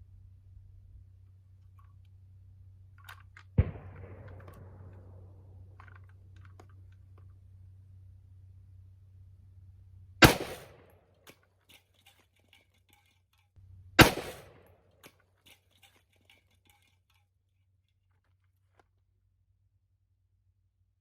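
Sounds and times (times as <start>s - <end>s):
gunshots with echo: 3.6s - 5.4s, 10.2s - 10.8s, 14.0s - 14.7s.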